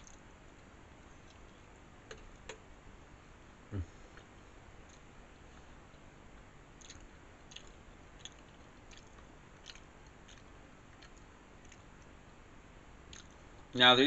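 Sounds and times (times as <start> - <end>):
person chewing with mouth closed: 6.8 - 12.1.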